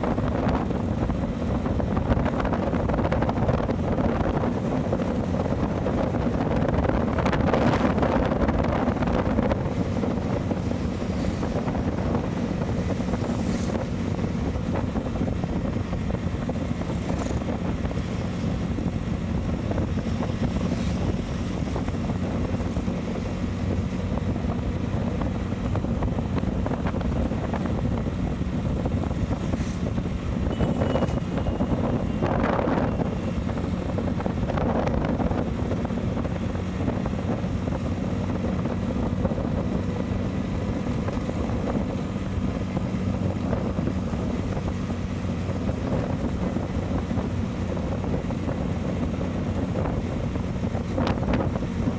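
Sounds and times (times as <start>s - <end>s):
motorcycle engine hum: 0.0s - 51.9s
wind rushing across microphone: 0.0s - 51.9s.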